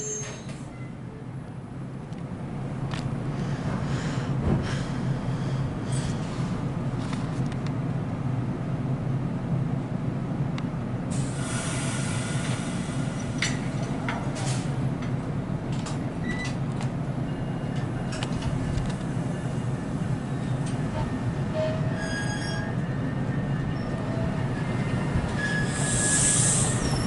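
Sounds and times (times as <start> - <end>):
train low hum: 0.0 - 27.0.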